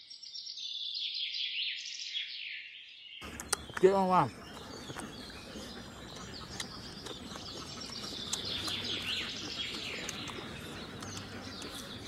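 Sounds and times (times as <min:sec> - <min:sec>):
small birds chirping: 0:00.0 - 0:12.0
faint clicks: 0:03.2 - 0:03.9, 0:04.5 - 0:12.0.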